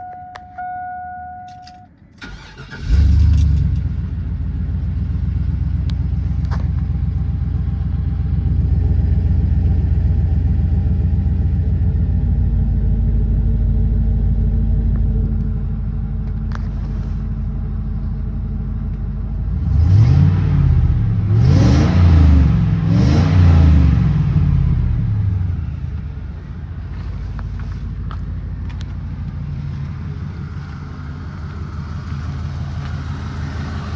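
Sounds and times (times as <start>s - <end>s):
short steady tone: 0.0s - 1.9s
engine cranking and idling: 1.6s - 9.9s, 25.1s - 33.9s
engine revving: 2.2s - 3.9s, 19.5s - 25.6s.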